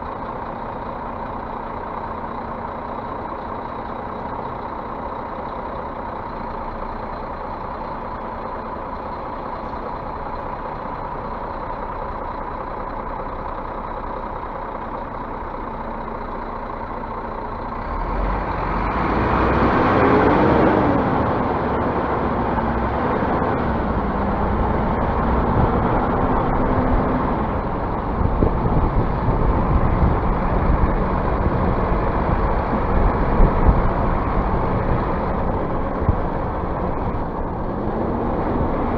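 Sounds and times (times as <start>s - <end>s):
bus engine revving: 17.4s - 38.9s.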